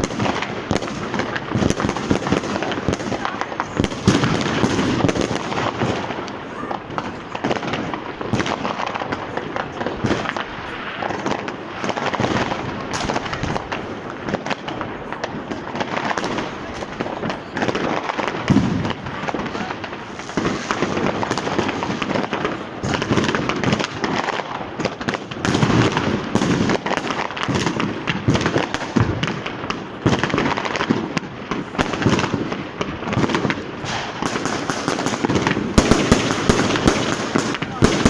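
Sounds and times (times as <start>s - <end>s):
firecracker bangs and crackling: 0.0s - 38.0s.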